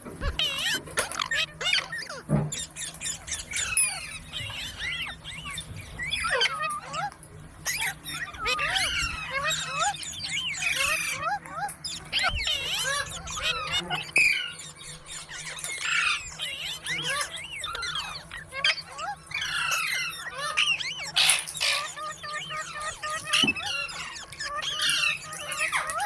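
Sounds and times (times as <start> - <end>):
parakeets chattering and squawking: 0.0 - 26.0
parakeet harsh screech: 12.2 - 26.0.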